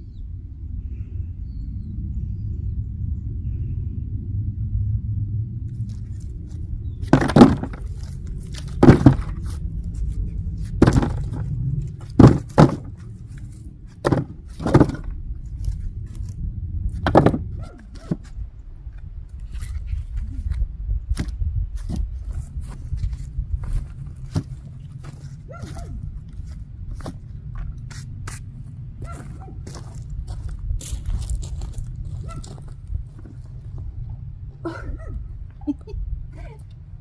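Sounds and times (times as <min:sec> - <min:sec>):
steady low rumble: 0:00.0 - 0:37.0
wood knocking: 0:07.0 - 0:07.9, 0:08.8 - 0:09.5, 0:10.8 - 0:11.5, 0:12.1 - 0:13.0, 0:14.0 - 0:15.1, 0:17.0 - 0:18.2.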